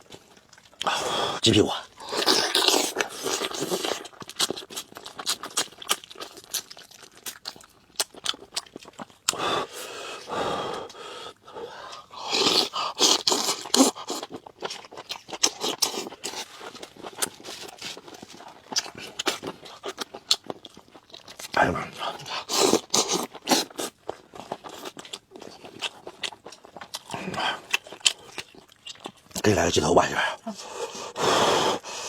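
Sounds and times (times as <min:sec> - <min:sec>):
wet chewing and lip-smacking: 0:00.0 - 0:01.0, 0:01.9 - 0:11.0, 0:11.8 - 0:29.4
slurping: 0:00.8 - 0:04.8.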